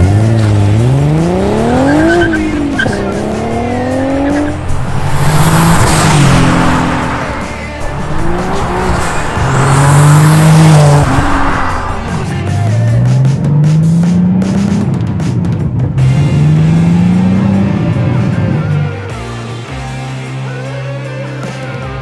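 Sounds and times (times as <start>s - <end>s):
loud rushes of noise: 0.0s - 12.5s
car engine accelerating: 0.0s - 18.9s.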